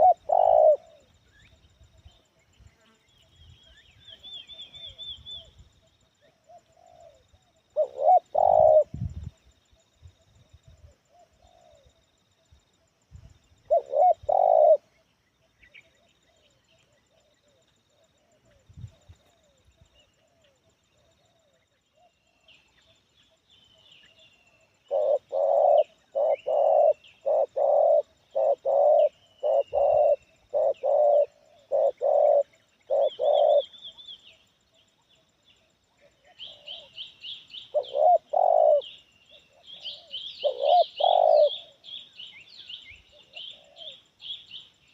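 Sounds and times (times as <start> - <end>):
dove cooing: 0.0 - 1.6, 6.3 - 9.3, 10.2 - 12.0, 13.6 - 15.0, 24.6 - 34.2, 36.0 - 42.4, 43.0 - 44.4
small birds chirping: 0.0 - 44.9.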